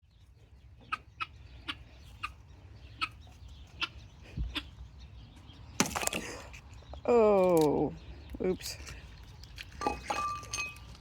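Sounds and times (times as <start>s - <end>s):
hen clucking: 0.3s - 5.1s.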